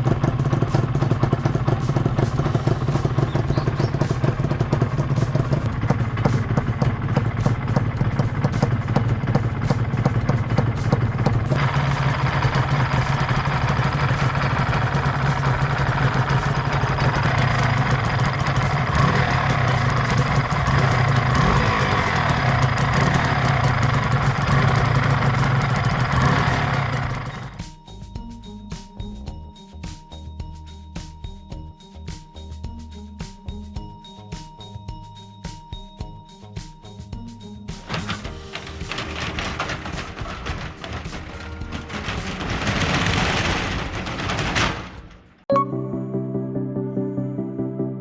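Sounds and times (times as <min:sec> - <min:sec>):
motorcycle engine running: 0:00.0 - 0:28.2, 0:37.2 - 0:45.5.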